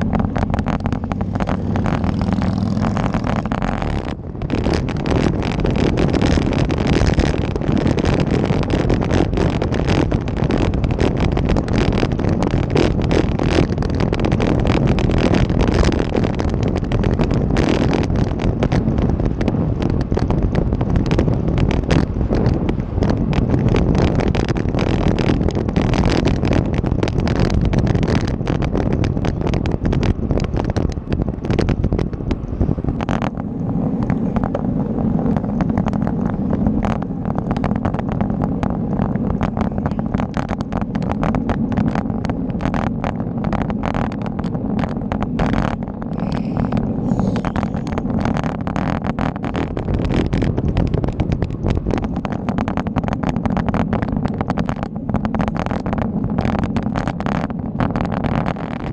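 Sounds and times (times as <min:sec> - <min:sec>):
bike rattling and knocking: 0:00.0 - 0:58.9
road rumble: 0:00.0 - 0:58.9
wind on microphone: 0:00.0 - 0:58.9.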